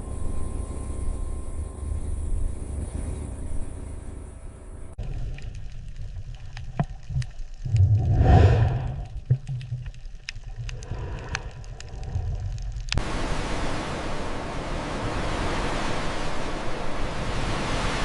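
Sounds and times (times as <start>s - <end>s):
low rumble: 0.0s - 18.0s
steady even hiss: 10.2s - 18.0s.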